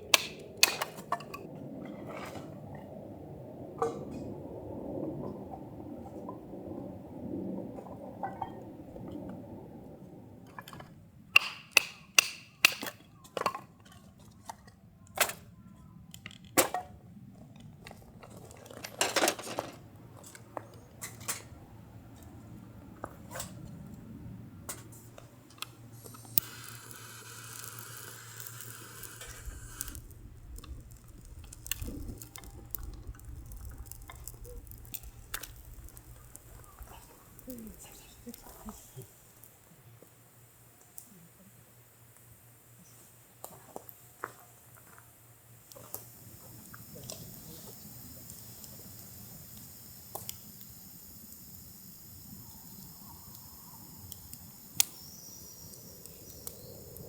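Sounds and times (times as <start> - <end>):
steady hiss: 19.0 - 57.0.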